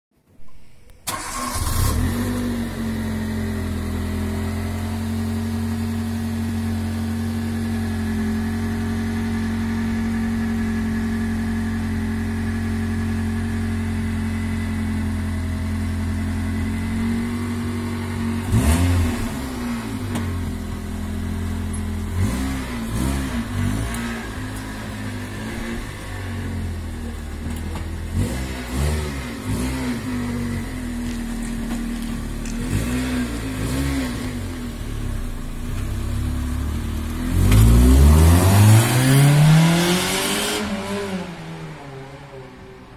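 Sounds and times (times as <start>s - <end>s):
car engine starting: 0.5s - 42.9s
car engine idling: 1.0s - 28.3s, 30.0s - 32.8s
engine revving: 1.1s - 5.9s, 16.8s - 20.5s, 21.1s - 26.8s, 27.4s - 35.6s, 36.2s - 42.0s.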